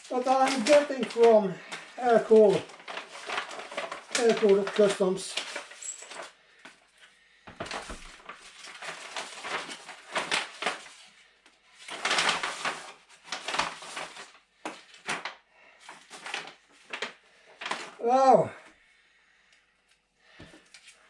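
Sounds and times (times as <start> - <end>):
parcel rustling and tearing: 0.0 - 6.3, 7.7 - 11.2, 11.8 - 18.0.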